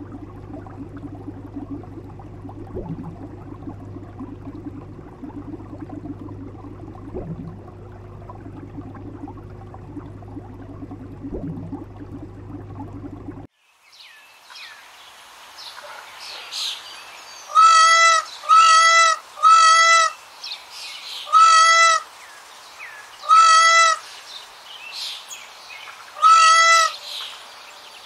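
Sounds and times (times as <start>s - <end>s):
aquarium pump hum: 0.0s - 13.5s
aquarium water bubbling: 0.0s - 13.5s.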